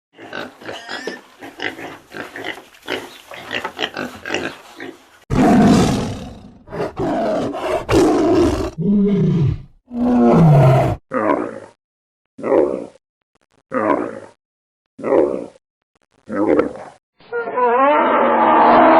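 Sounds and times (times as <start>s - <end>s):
animal roar: 5.3s - 11.8s, 16.3s - 18.9s.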